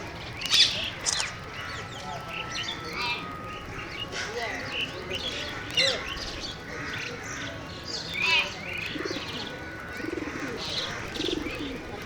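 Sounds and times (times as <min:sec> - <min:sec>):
parrots chirping and squawking: 0:00.4 - 0:01.8
low cooing calls: 0:00.4 - 0:01.9, 0:08.9 - 0:12.0.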